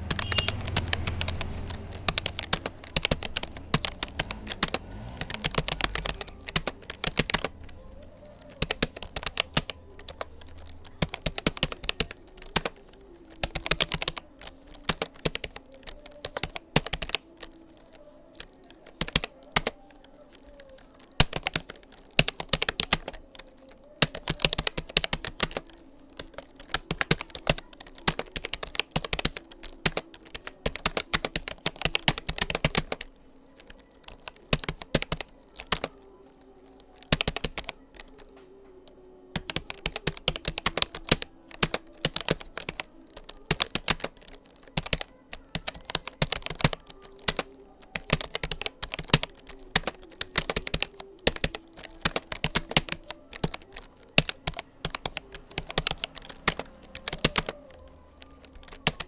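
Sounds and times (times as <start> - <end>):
fast typing on computer keyboard: 0.0 - 59.0.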